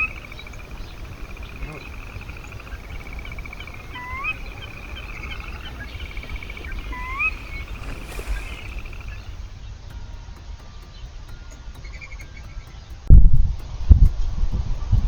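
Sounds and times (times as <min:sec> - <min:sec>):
fast high bird trill: 0:00.0 - 0:09.5
rising slurred whistles: 0:00.0 - 0:09.5
short bird chips: 0:00.0 - 0:09.6.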